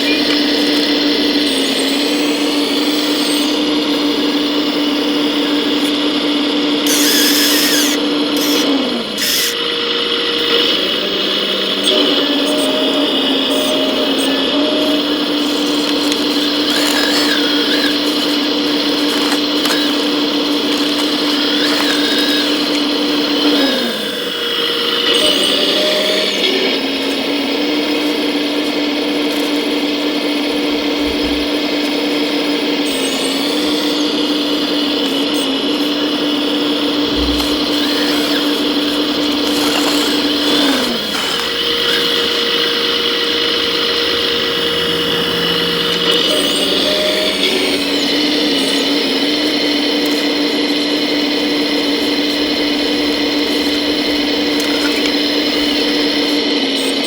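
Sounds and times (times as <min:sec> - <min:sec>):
small electric motors whining: 0:00.0 - 0:57.0.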